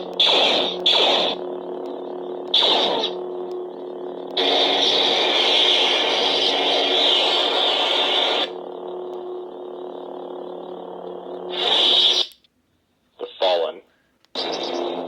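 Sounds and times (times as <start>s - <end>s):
loud sustained buzzing: 0.0s - 12.3s, 14.3s - 15.0s
toy lightsaber electronic hum: 0.0s - 12.5s, 14.3s - 15.0s.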